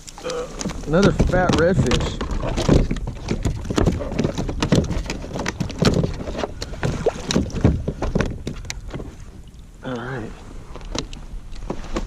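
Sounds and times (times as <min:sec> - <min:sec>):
knocks against kayak hull: 0:00.6 - 0:09.2.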